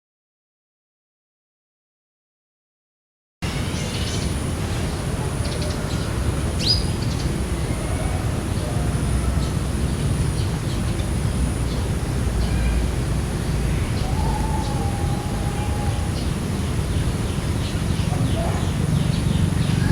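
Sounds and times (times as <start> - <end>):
birds chirping: 3.8 - 19.9.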